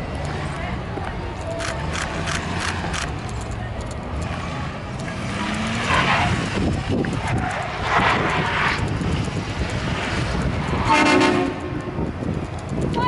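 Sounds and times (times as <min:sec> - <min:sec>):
truck engine revving: 0:00.0 - 0:12.9.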